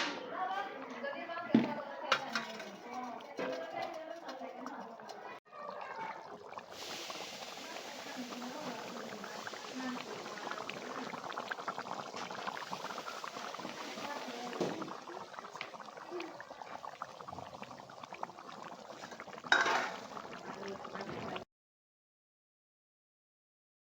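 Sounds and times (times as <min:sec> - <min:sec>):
curry bubbling in a pot: 0:02.1 - 0:21.4.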